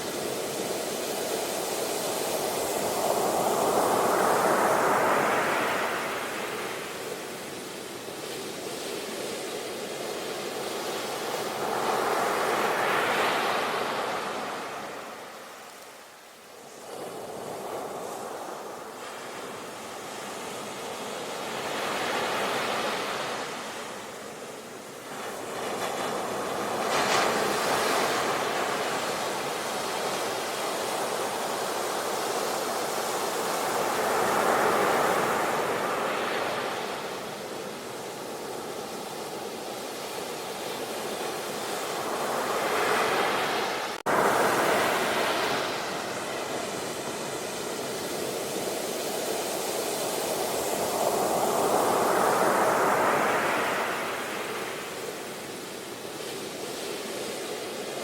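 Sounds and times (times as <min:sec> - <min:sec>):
ocean waves breaking: 0:41.0 - 0:56.0.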